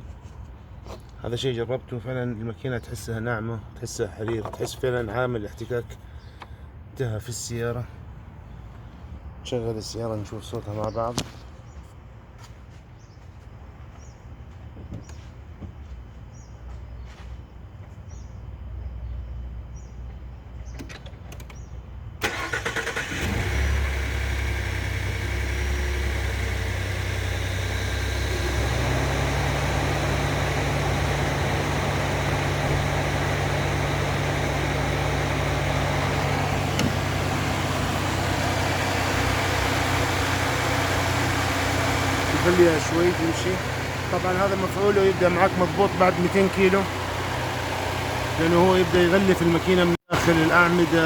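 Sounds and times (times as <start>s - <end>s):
engine cranking and starting: 22.2s - 51.0s
engine idling: 22.2s - 51.0s.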